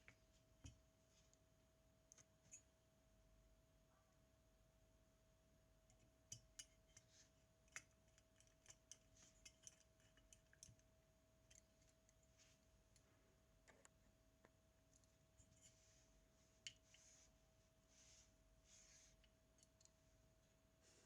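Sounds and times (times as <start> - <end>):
faint hum: 0.0 - 21.0
small metal parts clicking: 7.7 - 10.8.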